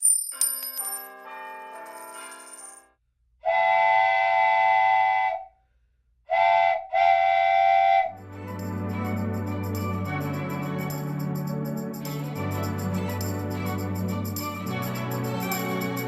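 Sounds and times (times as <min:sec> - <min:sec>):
chiming notes: 0:00.3 - 0:02.9
organ-like music: 0:08.2 - 0:16.0.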